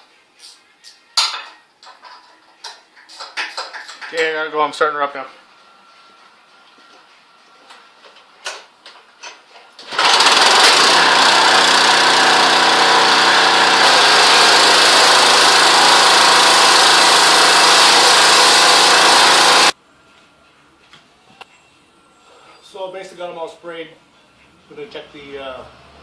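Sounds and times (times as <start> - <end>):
pressure washer engine running: 9.9 - 19.8.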